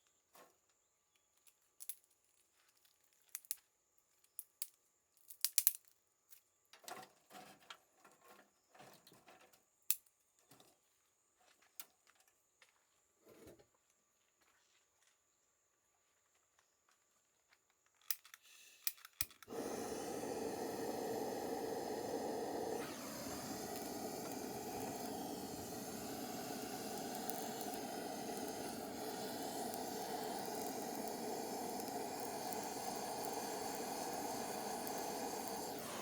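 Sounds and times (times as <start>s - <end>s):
burning flame hissing: 19.5s - 36.0s.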